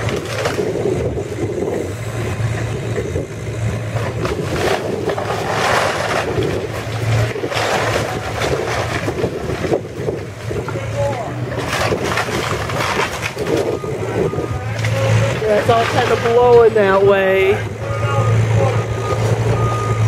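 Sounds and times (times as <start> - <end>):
wood and debris crashing: 0.0 - 1.1, 3.8 - 17.6
heavy machinery engine running: 0.0 - 20.0.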